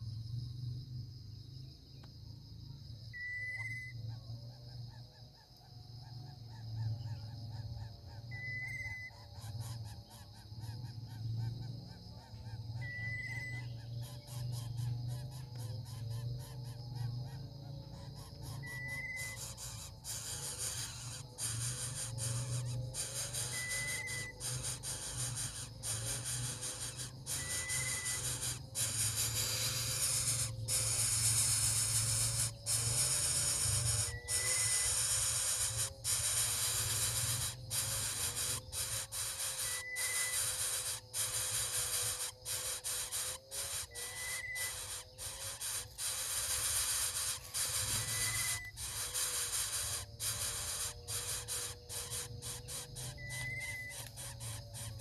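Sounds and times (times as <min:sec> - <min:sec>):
high whistled bird notes: 0:03.1 - 0:04.0, 0:08.3 - 0:09.2, 0:12.8 - 0:13.8, 0:18.5 - 0:55.0
steady hiss: 0:19.6 - 0:55.0.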